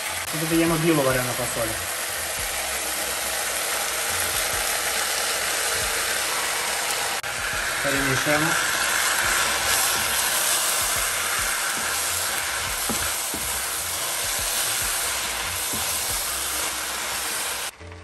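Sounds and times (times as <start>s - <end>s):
beans sizzling in a pan: 0.0s - 17.8s
spatula scraping and knocking pan: 7.4s - 17.6s.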